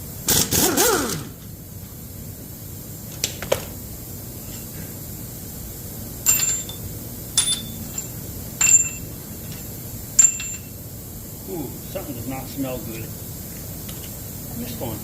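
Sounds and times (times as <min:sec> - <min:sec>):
low steady hum: 0:03.9 - 0:15.0
metal tools clinking: 0:06.3 - 0:09.6, 0:10.2 - 0:10.7.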